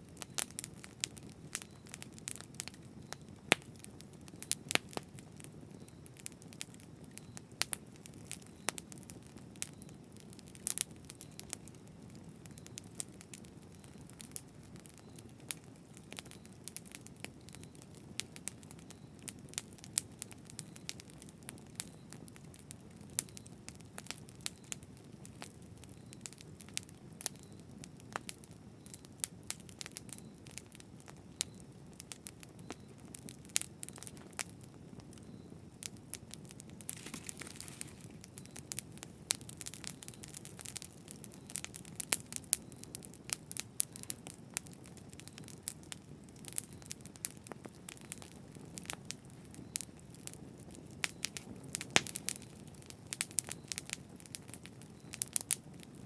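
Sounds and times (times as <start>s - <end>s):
low rumble of flame: 0.0s - 56.0s
wood crackling and popping: 0.0s - 56.0s
fire hissing: 36.6s - 44.8s.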